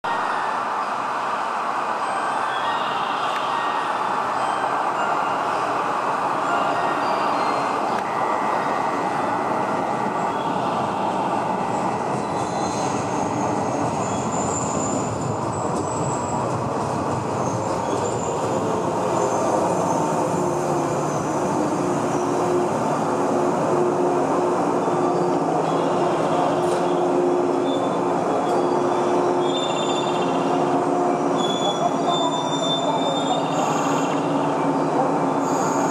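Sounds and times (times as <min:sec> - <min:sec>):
train wheels rumbling on rail: 0:03.2 - 0:35.9
high brake squeals: 0:06.5 - 0:09.1, 0:26.8 - 0:30.6, 0:31.2 - 0:34.4, 0:35.4 - 0:35.9.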